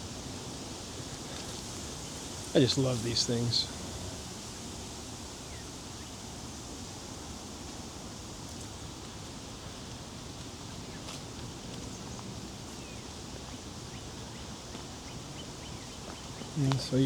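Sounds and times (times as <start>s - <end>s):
steady outdoor hiss: 0.0s - 17.0s
faint bird chirps: 11.9s - 17.0s.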